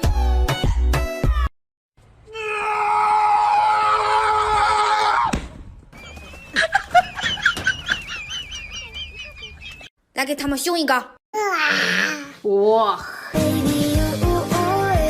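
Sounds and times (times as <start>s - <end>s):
long loud scream: 2.3s - 5.3s.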